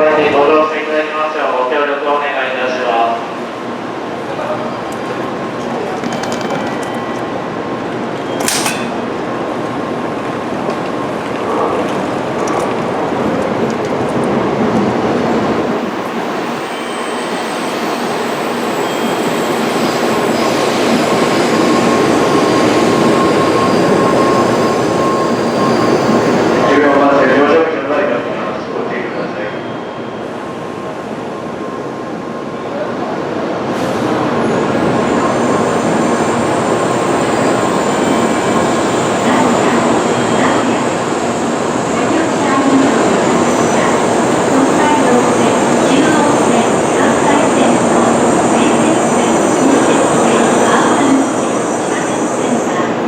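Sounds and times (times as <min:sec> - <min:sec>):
high train whine: 0:00.0 - 0:53.0
train wheel and air rush: 0:08.4 - 0:09.6.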